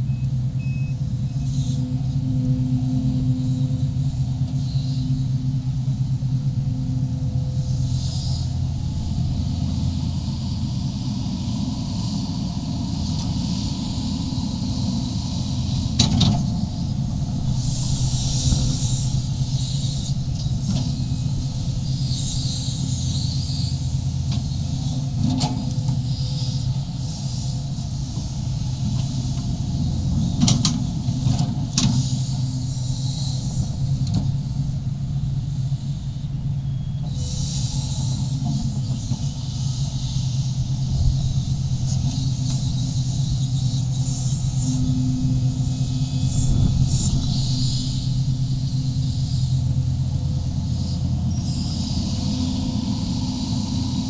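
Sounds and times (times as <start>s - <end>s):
excavator diesel engine running: 0.0s - 54.0s
high hiss: 37.0s - 54.0s.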